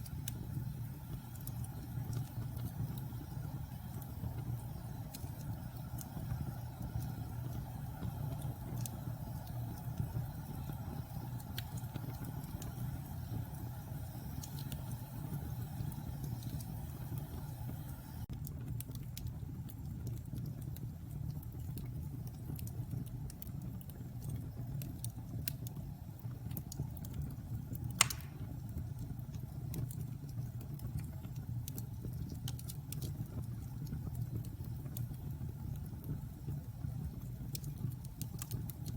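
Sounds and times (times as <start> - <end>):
fire flames rumbling: 0.0 - 38.9
wood fire crackles: 0.0 - 38.9
sharp pop of fire: 28.0 - 28.6.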